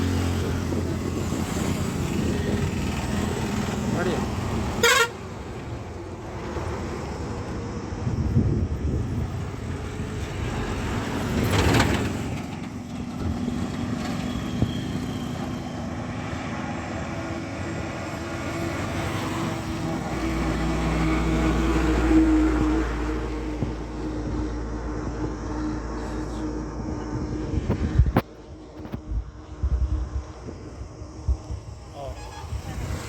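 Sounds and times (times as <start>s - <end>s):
heavy engine low drone: 0.0s - 33.0s
road traffic noise: 0.0s - 33.0s.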